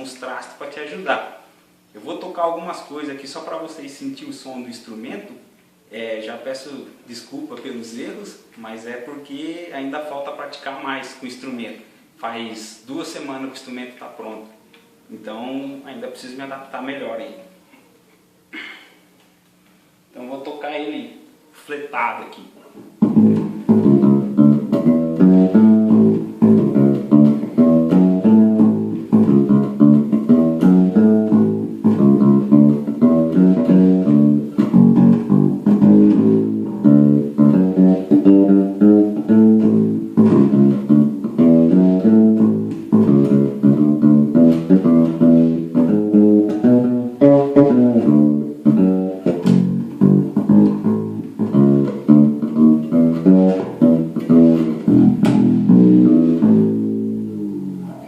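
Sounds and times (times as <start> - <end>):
fretless bass guitar plucked notes: 23.0 - 58.0.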